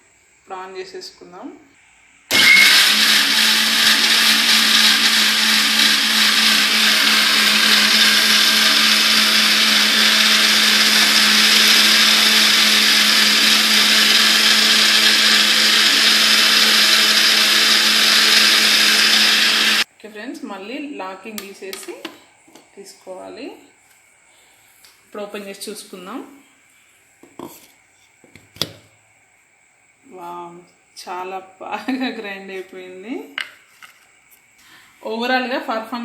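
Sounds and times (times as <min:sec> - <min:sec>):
mixer grinder motor grinding: 0:02.3 - 0:19.8.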